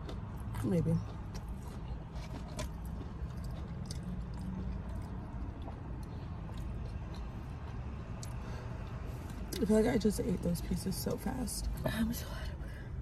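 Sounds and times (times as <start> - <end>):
chewing crunchy food: 0.0 - 9.6.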